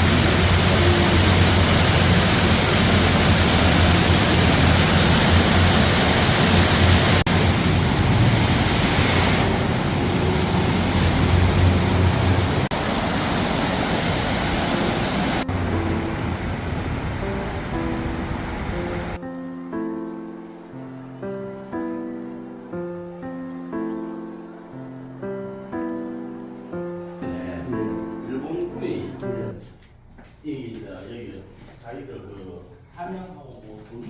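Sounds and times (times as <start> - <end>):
loud steady rushing noise: 0.0 - 19.2
faint music tones: 15.5 - 34.0.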